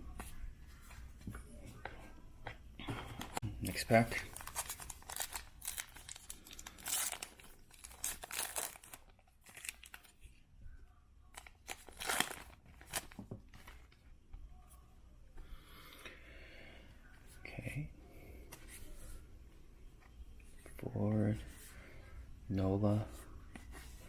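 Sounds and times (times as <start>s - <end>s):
foil wrapper tearing and crinkling: 4.1s - 10.1s, 11.4s - 13.2s.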